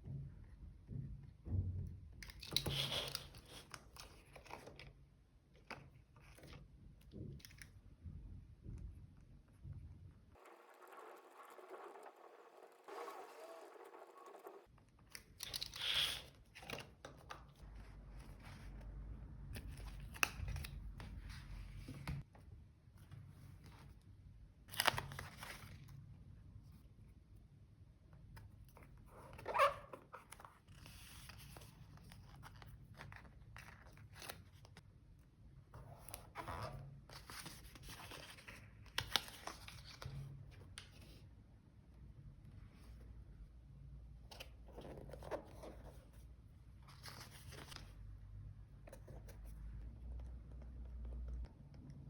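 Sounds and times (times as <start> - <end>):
paper rustling: 10.4 - 14.7.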